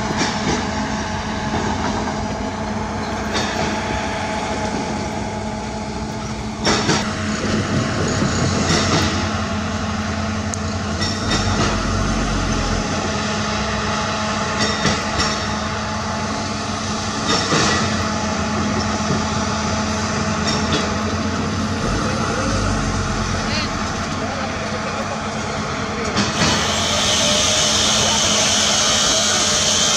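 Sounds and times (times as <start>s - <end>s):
diesel engine running: 10.1s - 14.0s, 20.9s - 26.1s
loud metal clanks: 11.0s - 12.8s.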